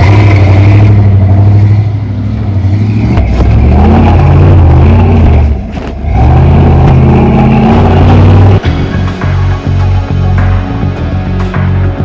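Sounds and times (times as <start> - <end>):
truck engine revving hard: 0.0 - 9.6.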